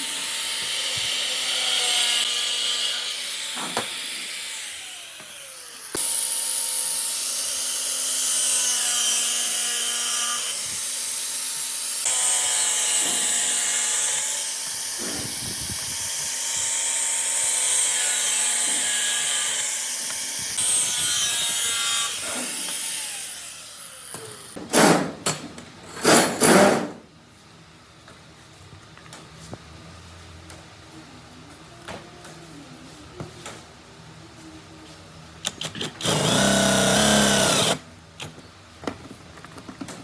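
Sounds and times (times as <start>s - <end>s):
power tool whining: 0.0s - 24.6s, 35.5s - 37.8s
power tool loud bursts: 26.0s - 27.0s, 35.9s - 37.8s.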